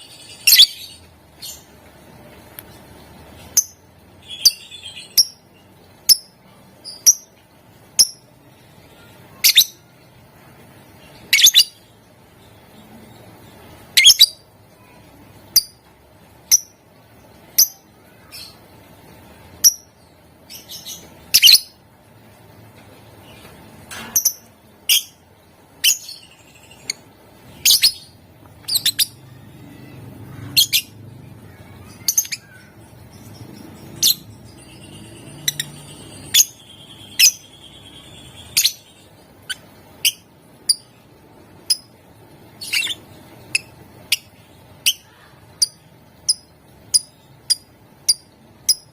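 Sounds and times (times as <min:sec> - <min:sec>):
lovebird chattering: 0:27.6 - 0:29.2, 0:31.5 - 0:41.0, 0:41.6 - 0:42.0, 0:42.6 - 0:48.9
lovebird shrill chirps: 0:31.8 - 0:40.8.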